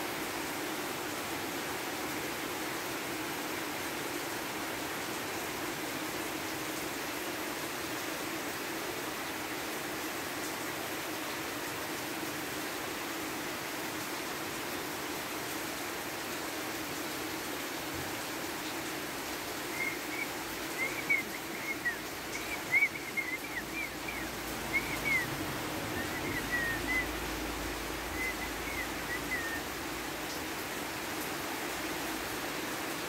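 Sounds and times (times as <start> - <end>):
steady rain falling: 0.0 - 33.0
bird chirping: 19.7 - 25.4, 26.0 - 27.1, 28.1 - 29.7.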